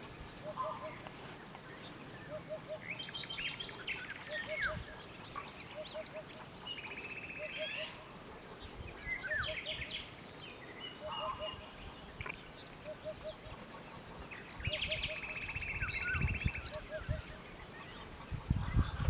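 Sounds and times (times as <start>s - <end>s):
small birds chirping: 1.7s - 19.0s
buzzy rattling bird call: 5.5s - 19.0s.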